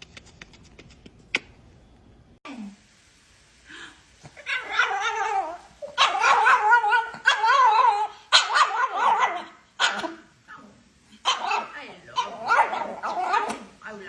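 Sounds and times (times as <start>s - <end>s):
dog howling: 4.4s - 10.0s, 11.3s - 13.7s.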